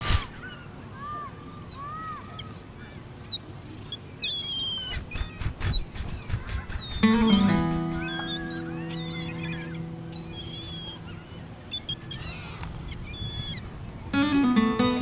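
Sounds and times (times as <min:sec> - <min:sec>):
birds whistling high calls: 0:00.0 - 0:15.0
low rising-and-falling bird calls: 0:03.3 - 0:15.0.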